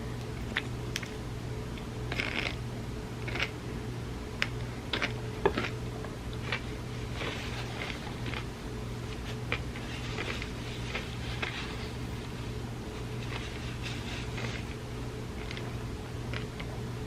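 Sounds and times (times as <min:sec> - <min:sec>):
steady low hum: 0:00.0 - 0:17.0
eating sounds with wet mouth noises: 0:03.2 - 0:03.6.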